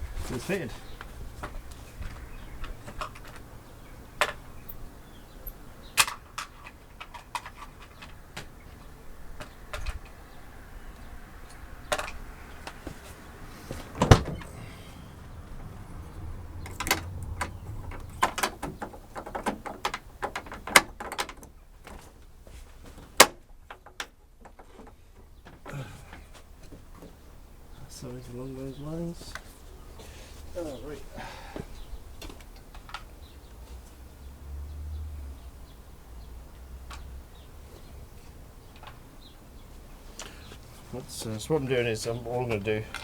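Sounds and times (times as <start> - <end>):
small hardware clicking and knocking: 16.6 - 21.6.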